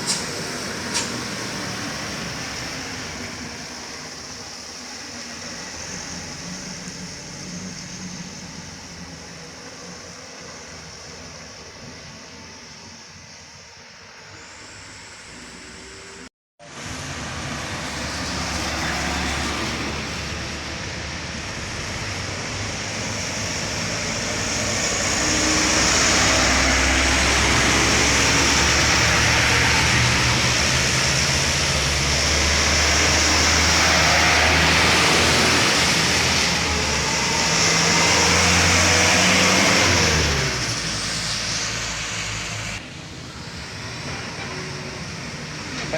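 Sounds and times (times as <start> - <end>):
truck engine at full throttle: 0.0 - 45.9.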